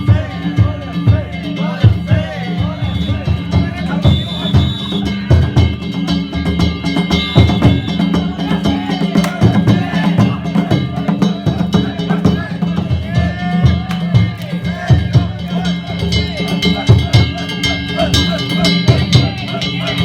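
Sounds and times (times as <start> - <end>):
taiko drums beating: 0.0 - 20.0
metallic hand gongs ringing: 13.7 - 20.0.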